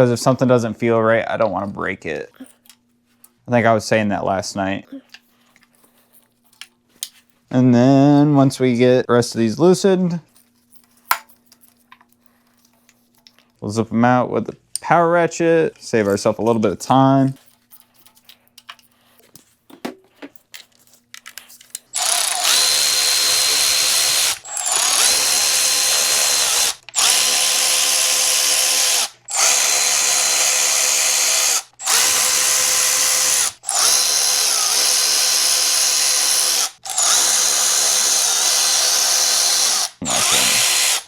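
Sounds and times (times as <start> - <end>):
power ratchet whirring: 21.9 - 41.0.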